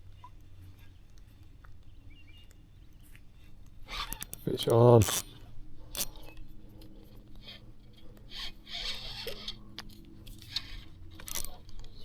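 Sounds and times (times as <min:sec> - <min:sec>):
fishing gear clicks and scrapes: 0:03.8 - 0:12.0.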